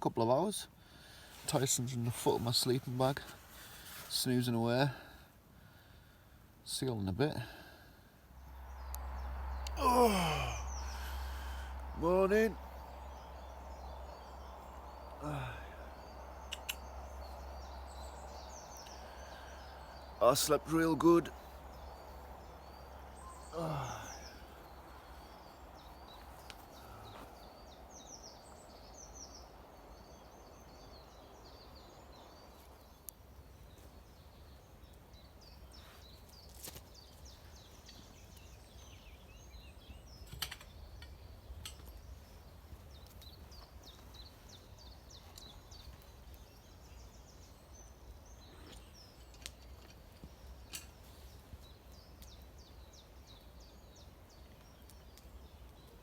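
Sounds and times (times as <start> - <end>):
low steady rumble: 8.3 - 20.4
birds chirping and singing: 8.4 - 56.0
sharp clicks: 16.5 - 17.0.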